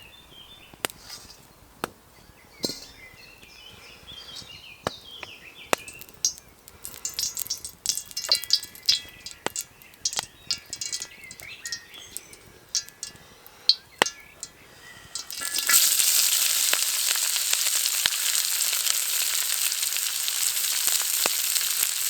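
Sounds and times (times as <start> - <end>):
small birds chirping: 0.0 - 22.0
crackling ticks: 5.7 - 14.6, 15.2 - 22.0.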